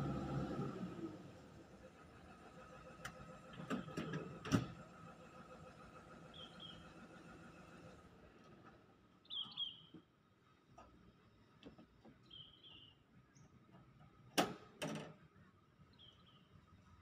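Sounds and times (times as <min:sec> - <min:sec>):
small bird chirping: 0:09.2 - 0:09.9, 0:12.3 - 0:13.4.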